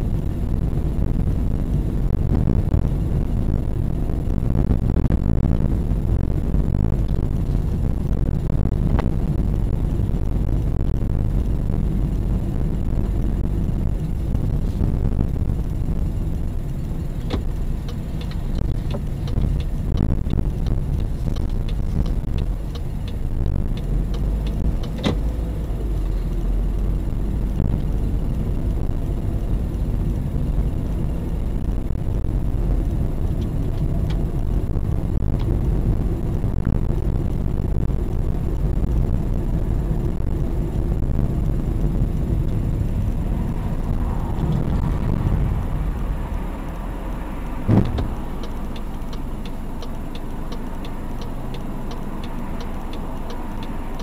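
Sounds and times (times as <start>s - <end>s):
car road and engine rumble: 0.0s - 54.0s
faint regular ticking: 12.1s - 44.9s, 45.7s - 54.0s.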